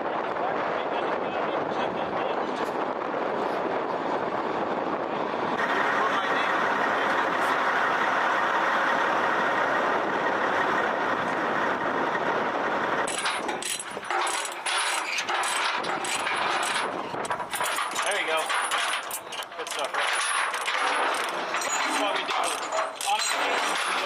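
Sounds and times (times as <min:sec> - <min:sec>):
truck diesel engine running: 0:05.2 - 0:18.0
rapid clicks and crackles: 0:13.0 - 0:24.0.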